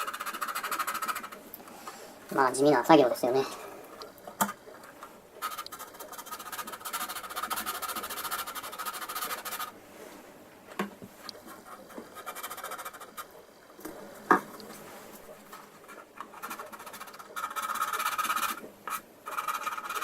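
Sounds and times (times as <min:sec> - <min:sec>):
hand file rasping on plastic: 0:00.0 - 0:01.4, 0:05.4 - 0:09.8, 0:11.4 - 0:13.4, 0:15.4 - 0:20.0
faint scratching: 0:00.0 - 0:20.0.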